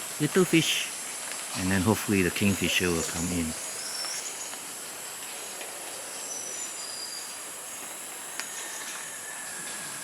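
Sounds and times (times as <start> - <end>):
high insect drone: 0.0 - 10.0.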